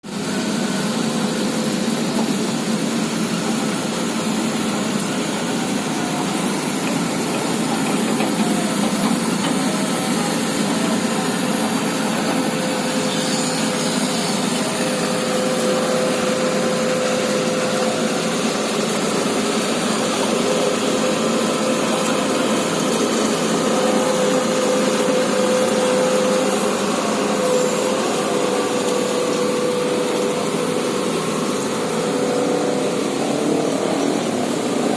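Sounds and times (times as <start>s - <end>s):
excavator diesel engine running: 0.1s - 34.9s
thin whining tone: 23.7s - 34.9s.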